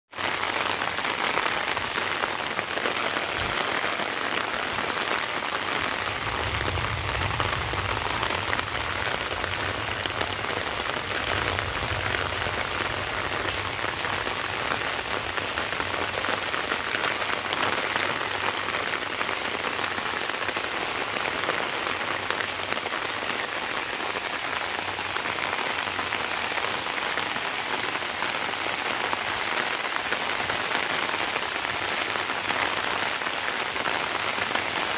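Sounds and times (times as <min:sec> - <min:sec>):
rain falling on wet grass: 0:00.1 - 0:34.9.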